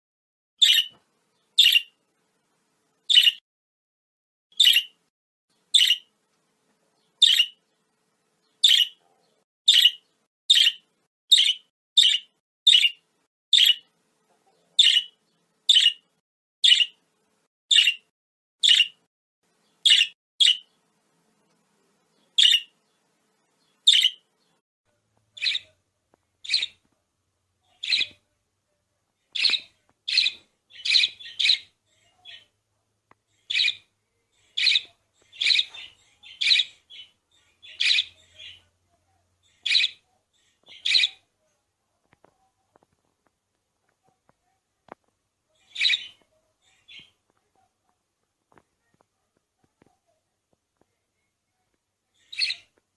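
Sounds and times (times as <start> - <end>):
budgerigar chirping: 0.6 - 1.0, 1.6 - 2.0, 3.1 - 3.4, 4.5 - 5.0, 5.7 - 6.1, 7.2 - 7.6, 8.6 - 9.0, 9.7 - 13.9, 14.8 - 16.0, 16.6 - 17.0, 17.7 - 19.0, 19.8 - 20.7, 22.4 - 22.7, 23.9 - 24.2, 25.4 - 25.8, 26.4 - 26.8, 27.7 - 28.2, 29.3 - 32.5, 33.4 - 33.9, 34.5 - 38.7, 39.4 - 40.0, 40.6 - 41.2, 45.6 - 47.1, 52.2 - 52.7.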